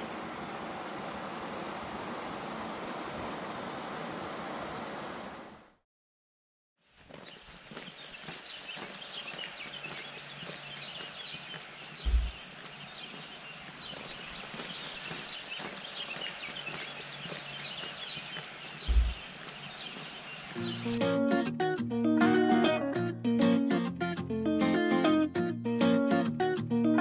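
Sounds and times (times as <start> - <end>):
songbirds chirping and singing: 6.9 - 21.2
brief low thuds: 12.0 - 12.4, 18.8 - 19.3.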